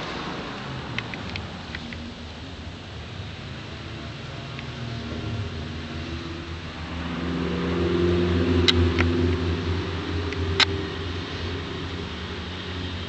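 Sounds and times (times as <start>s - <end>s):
sharp clicks: 1.0s - 2.0s, 10.3s - 10.8s.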